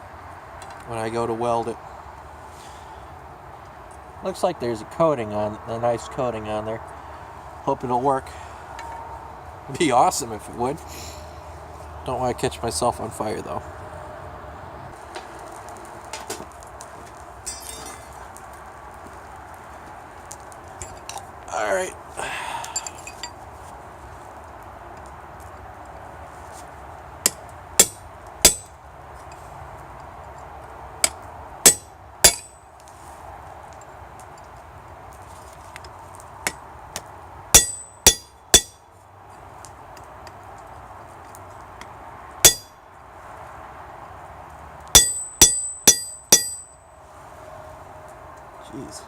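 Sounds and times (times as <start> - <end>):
hammer blows on anvil: 31.0 - 32.6, 37.6 - 38.8, 42.4 - 42.8, 44.9 - 46.8.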